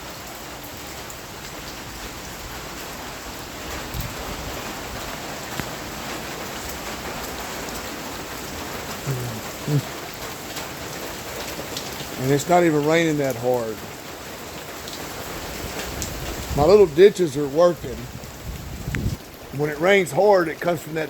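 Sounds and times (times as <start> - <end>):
rain falling on water: 0.0 - 21.0
man's voice: 9.0 - 9.9, 12.2 - 13.8, 16.5 - 18.1, 19.5 - 21.0.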